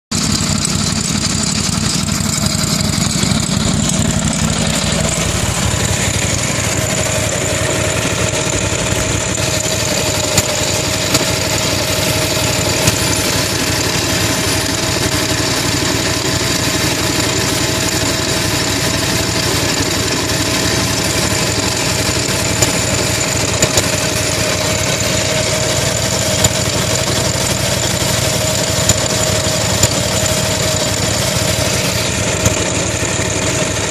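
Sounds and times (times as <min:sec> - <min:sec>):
garden tractor engine running: 0:00.1 - 0:33.9
steady whine: 0:00.1 - 0:33.9
sharp knocks: 0:09.3 - 0:14.8, 0:22.0 - 0:25.4, 0:28.6 - 0:32.9.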